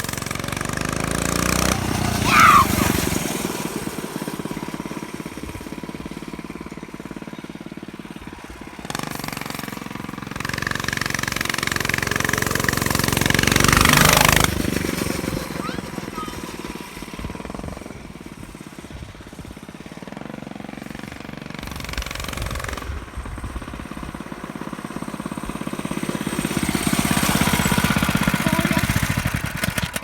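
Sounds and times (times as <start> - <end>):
dirt bike riding by: 0.0 - 30.0.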